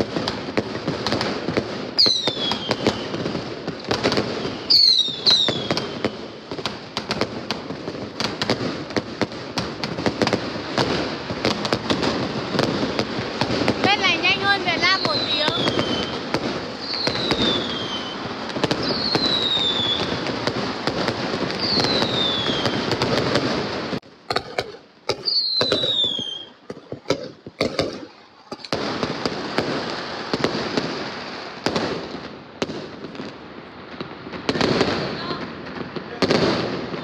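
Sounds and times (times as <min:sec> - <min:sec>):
sharp firework bangs: 0:00.0 - 0:33.4, 0:34.3 - 0:37.0
fireworks crackling: 0:00.0 - 0:37.0
falling firework whistles: 0:01.0 - 0:07.2, 0:10.1 - 0:32.1.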